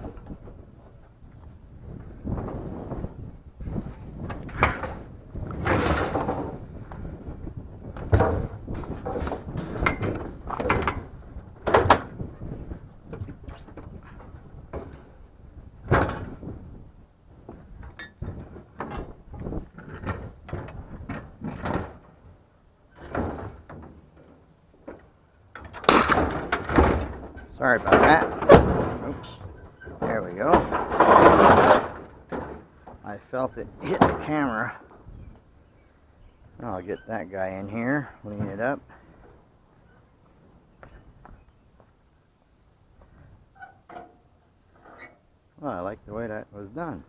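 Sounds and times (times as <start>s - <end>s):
scrap items knocking and clattering: 25.7s - 32.7s.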